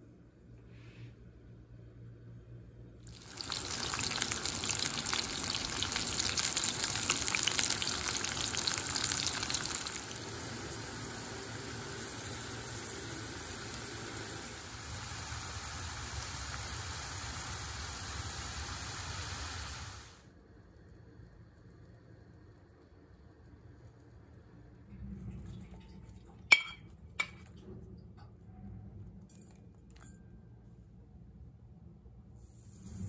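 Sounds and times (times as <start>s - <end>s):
vegetable slices sizzling in oil: 3.1s - 20.2s.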